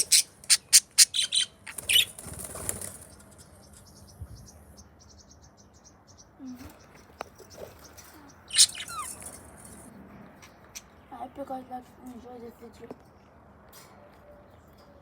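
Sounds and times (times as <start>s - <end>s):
budgies chirping: 0.0s - 11.0s.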